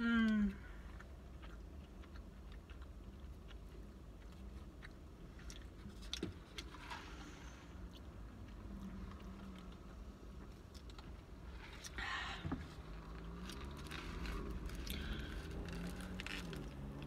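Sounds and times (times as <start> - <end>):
low steady rumble: 0.0 - 17.0
person chewing and biting: 0.8 - 6.9.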